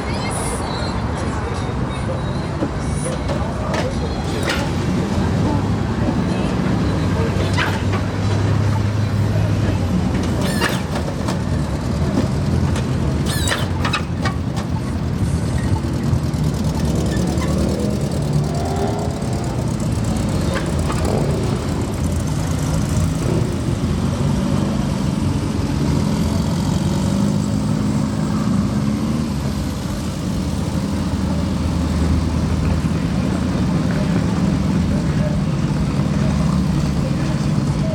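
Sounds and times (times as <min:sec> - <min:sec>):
car engines rumbling: 0:00.0 - 0:37.9
engine revving: 0:15.8 - 0:37.9.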